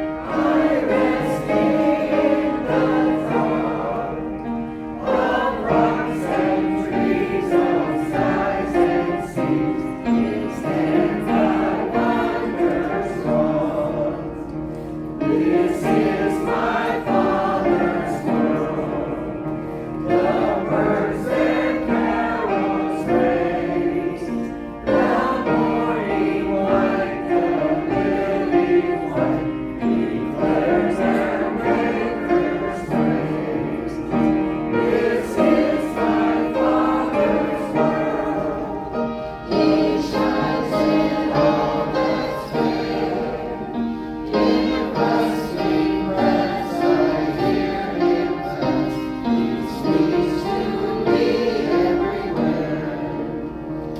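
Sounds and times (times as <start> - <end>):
choir singing: 0.0 - 53.9.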